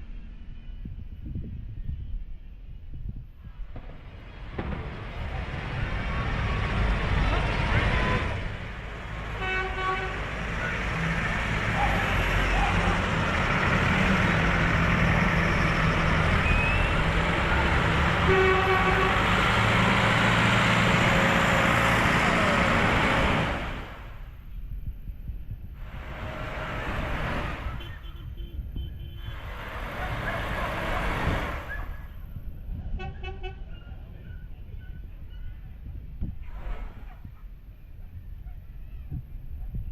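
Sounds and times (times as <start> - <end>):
tractor engines running: 3.6 - 24.4, 25.5 - 32.4
horn tooting: 9.2 - 10.9, 16.4 - 19.7, 27.3 - 29.6, 33.0 - 34.4.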